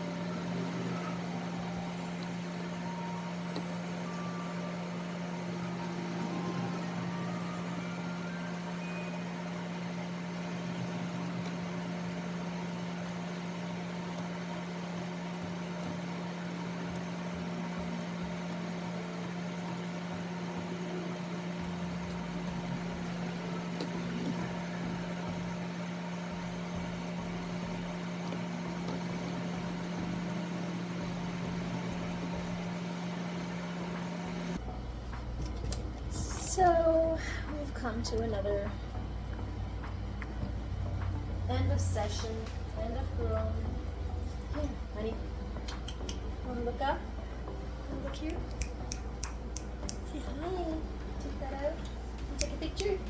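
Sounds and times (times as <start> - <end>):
electric clippers humming: 0.0 - 34.6.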